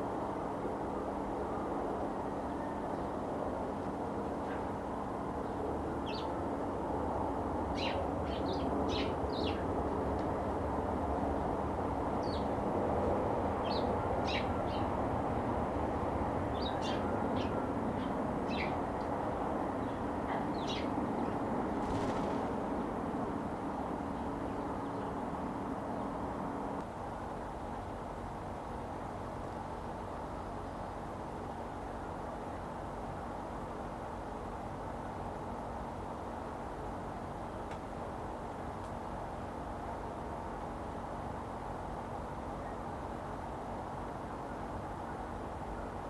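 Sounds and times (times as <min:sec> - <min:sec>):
sparrows chirping: 0:05.4 - 0:06.4, 0:07.7 - 0:09.6, 0:12.2 - 0:12.6, 0:13.6 - 0:15.0, 0:16.5 - 0:18.9, 0:19.8 - 0:21.4.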